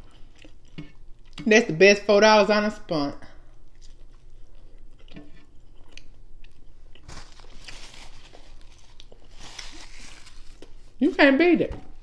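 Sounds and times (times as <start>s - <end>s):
chewing with wet mouth clicks: 0.0s - 1.5s, 3.5s - 7.1s.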